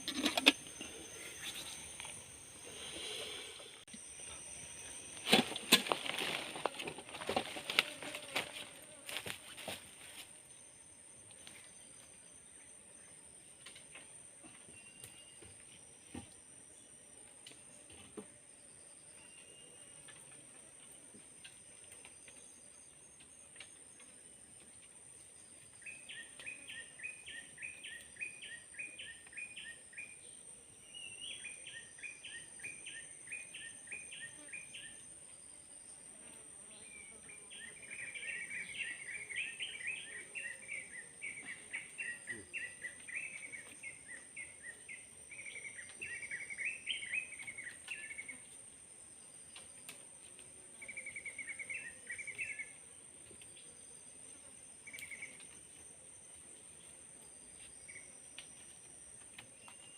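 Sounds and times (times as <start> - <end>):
high-pitched insect drone: 0.4 - 6.7.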